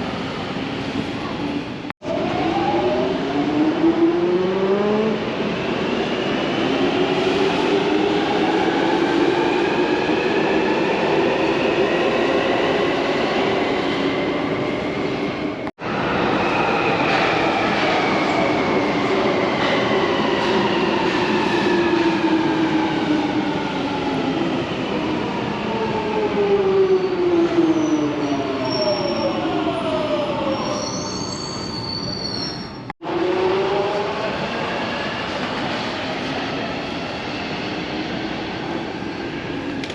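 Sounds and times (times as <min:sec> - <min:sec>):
high wheel or brake squeal: 0:30.7 - 0:32.8.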